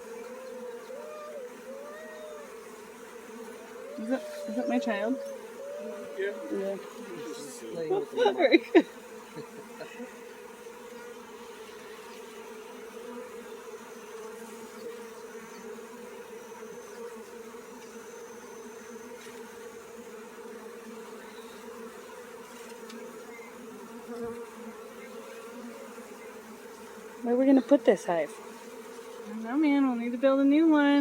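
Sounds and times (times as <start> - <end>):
bee swarm buzzing: 0.0 - 31.0.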